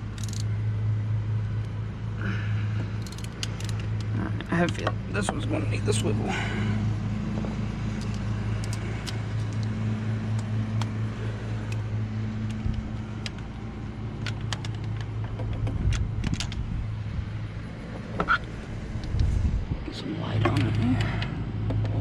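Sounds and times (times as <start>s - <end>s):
steady low hum: 0.0s - 22.0s
socket wrench metallic clicks: 0.1s - 0.5s, 3.0s - 5.0s, 7.9s - 11.0s.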